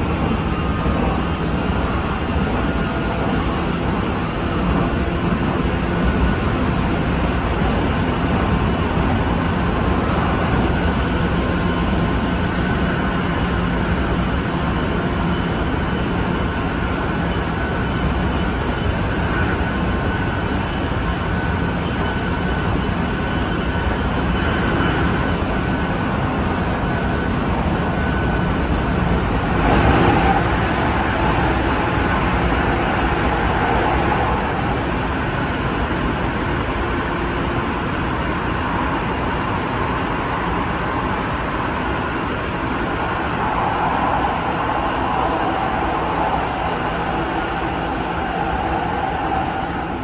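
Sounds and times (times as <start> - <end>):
train wheels roaring on rails: 0.0 - 50.0.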